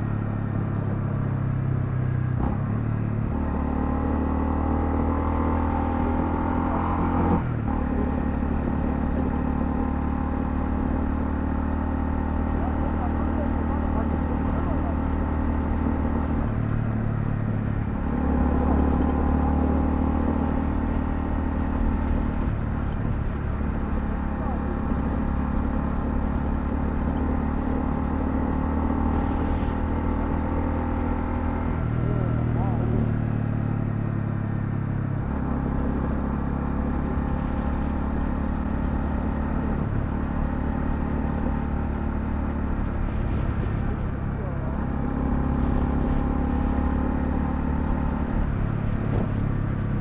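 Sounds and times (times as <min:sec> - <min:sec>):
motorcycle engine accelerating: 0:00.0 - 0:50.0
road and wind noise: 0:00.0 - 0:50.0.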